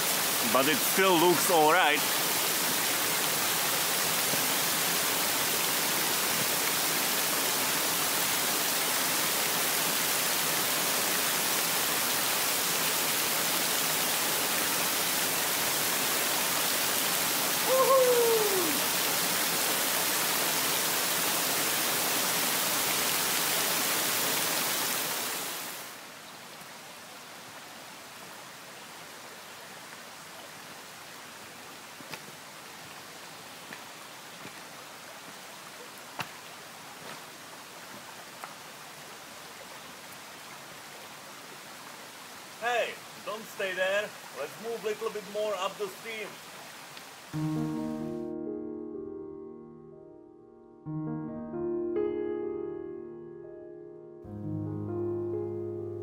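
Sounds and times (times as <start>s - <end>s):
stream cascading over rocks: 0.0s - 47.8s
short falling call: 17.6s - 18.9s.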